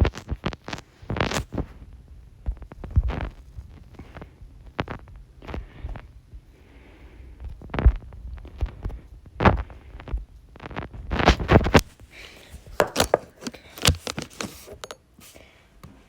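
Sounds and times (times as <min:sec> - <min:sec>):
plastic sticks striking ball: 0:12.6 - 0:15.0
sticks bumping on floor: 0:12.6 - 0:15.0.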